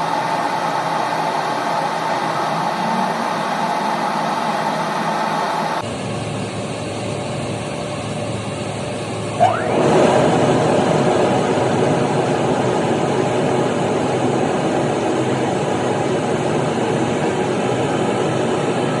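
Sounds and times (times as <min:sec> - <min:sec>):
burner and blower running: 0:00.0 - 0:19.0
short rising squeal: 0:09.4 - 0:10.5.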